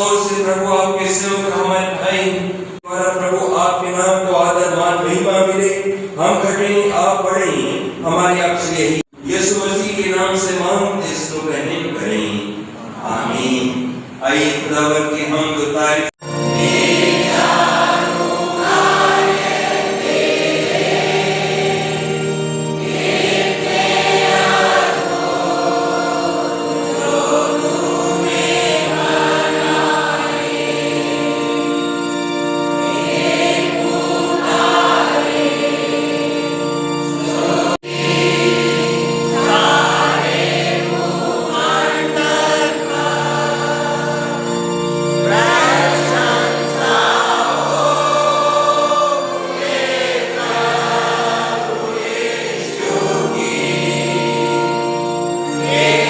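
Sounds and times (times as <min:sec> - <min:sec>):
held accompanying notes: 0:00.0 - 0:56.0
group singing a hymn: 0:12.8 - 0:14.8, 0:16.2 - 0:56.0.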